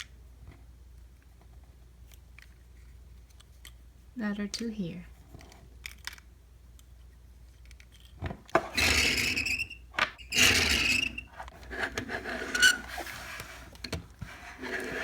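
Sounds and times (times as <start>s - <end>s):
plastic toy pieces squeaking: 8.8s - 11.5s.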